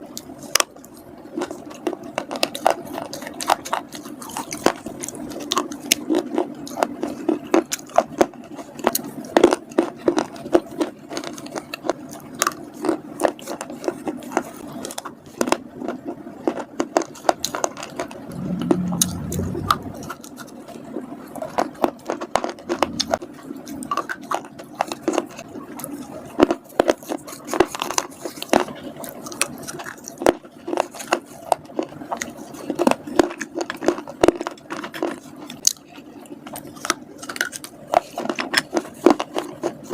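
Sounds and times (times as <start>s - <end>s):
crunching and chewing: 0.0s - 39.9s
low hum: 18.2s - 20.2s.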